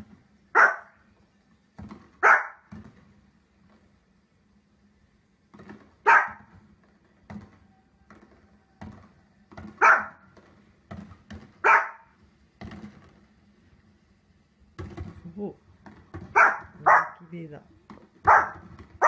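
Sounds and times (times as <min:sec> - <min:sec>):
small dog barking: 0:00.5 - 0:01.0, 0:02.2 - 0:02.7, 0:06.0 - 0:06.5, 0:09.8 - 0:10.2, 0:11.6 - 0:12.2, 0:16.3 - 0:17.3, 0:18.2 - 0:18.6.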